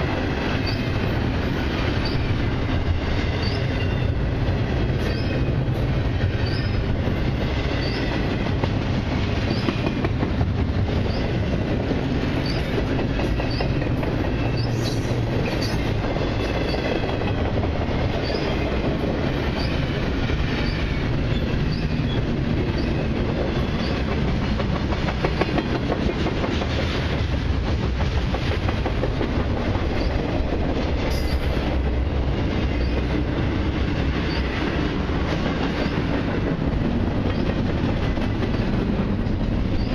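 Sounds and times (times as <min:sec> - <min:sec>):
freight train cars rolling: 0:00.0 - 0:39.9
wheels clacking over rail joints: 0:00.0 - 0:39.9
high wheel squeals: 0:05.0 - 0:05.6, 0:06.4 - 0:06.9, 0:07.7 - 0:08.2, 0:20.6 - 0:22.2.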